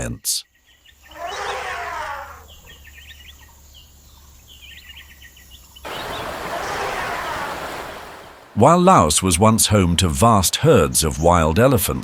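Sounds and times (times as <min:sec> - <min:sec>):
birds chirping: 0:00.0 - 0:10.0
quiet forest ambience: 0:00.0 - 0:11.9
steady rushing noise: 0:05.9 - 0:09.6.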